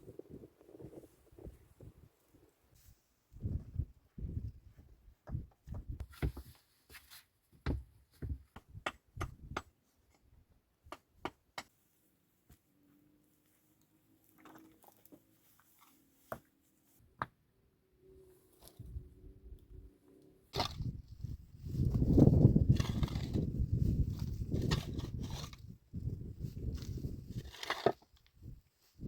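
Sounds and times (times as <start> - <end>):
knocks and thumps of handling: 5.2 - 6.6.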